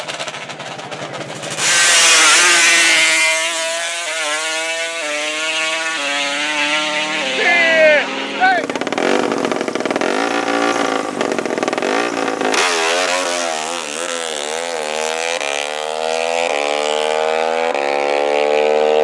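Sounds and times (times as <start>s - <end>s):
atv engine revving: 0.0s - 19.0s
engine gear shifts: 8.3s - 16.5s.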